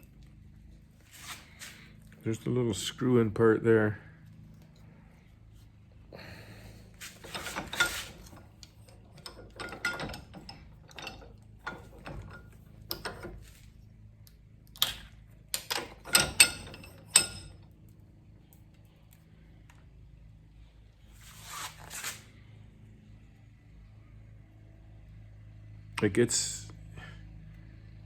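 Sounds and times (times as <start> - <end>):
hand tools clicking and scraping: 6.2 - 13.6, 14.8 - 17.6.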